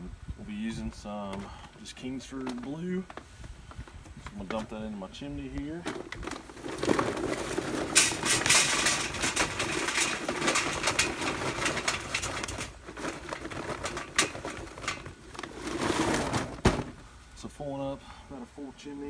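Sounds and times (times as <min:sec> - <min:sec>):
charcoal briquettes clattering: 0:05.6 - 0:17.5.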